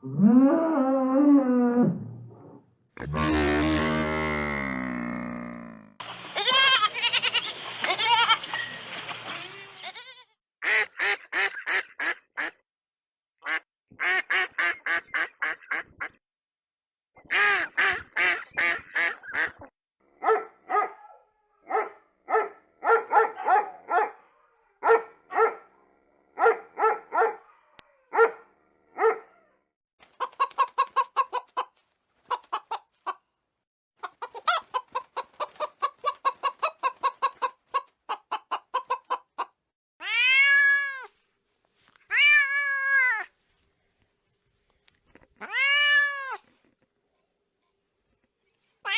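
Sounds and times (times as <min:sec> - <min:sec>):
chickens clucking: 0:30.0 - 0:33.2, 0:34.0 - 0:39.6.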